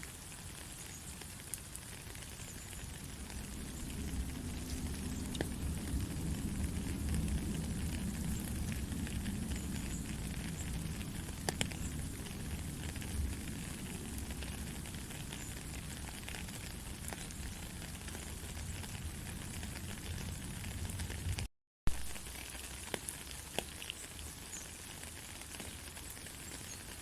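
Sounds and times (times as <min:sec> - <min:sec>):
gentle rain: 0:00.0 - 0:27.0
low rumble: 0:02.8 - 0:17.8.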